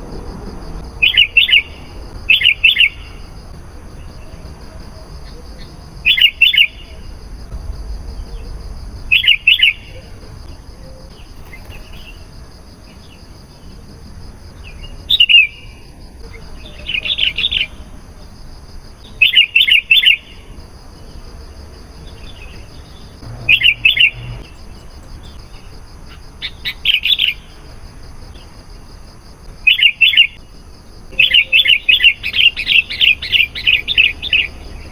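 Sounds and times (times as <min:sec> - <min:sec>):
bird song whistled notes: 0:01.0 - 0:03.2, 0:05.2 - 0:07.0, 0:09.1 - 0:12.2, 0:14.8 - 0:15.7, 0:19.2 - 0:20.4, 0:22.2 - 0:25.7, 0:29.7 - 0:30.4, 0:31.1 - 0:34.9.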